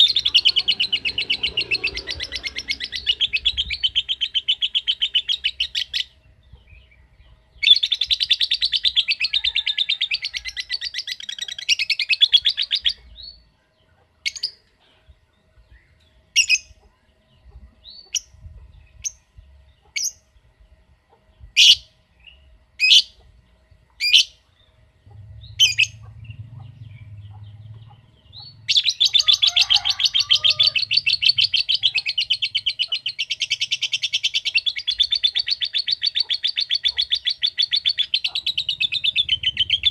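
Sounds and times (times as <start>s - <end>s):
lovebird rapid ticking chatter: 25.1s - 39.9s
sharp bird chirps: 25.1s - 39.9s.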